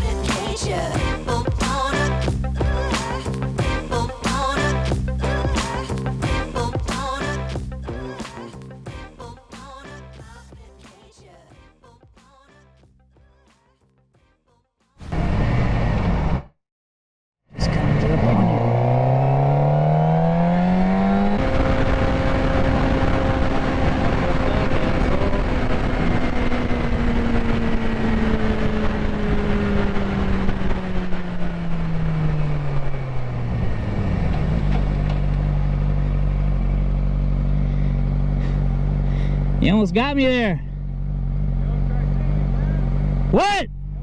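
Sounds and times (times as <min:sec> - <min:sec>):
sportbike engine accelerating: 0:17.6 - 0:44.0.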